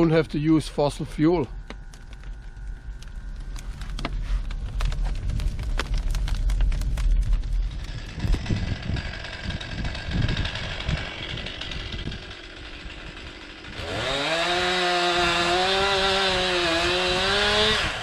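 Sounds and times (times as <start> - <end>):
chainsaw engine revving: 7.7 - 18.0.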